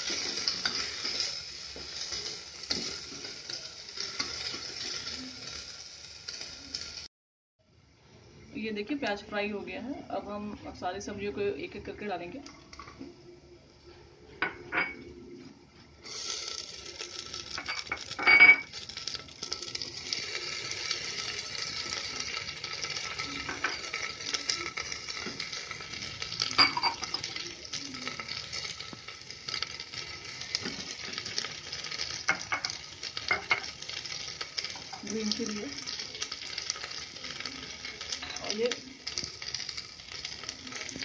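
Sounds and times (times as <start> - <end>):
vegetables sizzling in fat: 0.0 - 7.1, 8.2 - 41.0.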